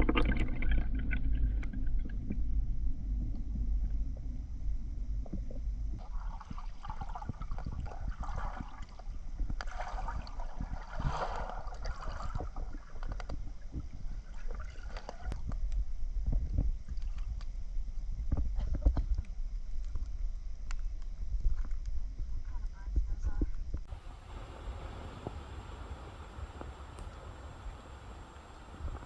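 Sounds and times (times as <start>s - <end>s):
low steady rumble: 0.0s - 29.0s
water splashing around swimmer: 6.0s - 13.1s.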